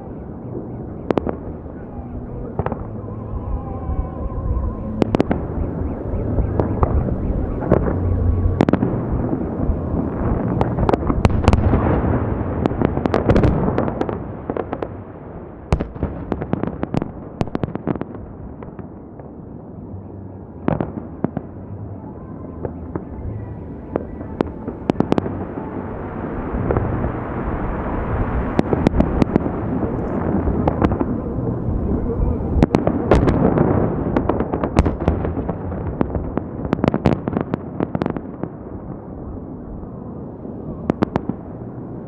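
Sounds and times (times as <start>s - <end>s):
fireworks bursting: 0.0s - 14.2s, 22.5s - 38.6s, 40.2s - 42.0s.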